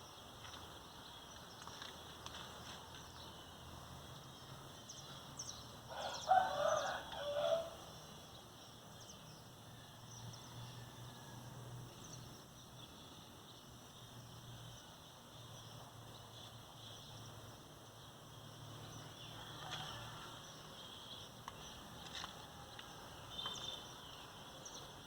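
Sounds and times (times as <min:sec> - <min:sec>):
rooster crowing: 0:05.9 - 0:07.9.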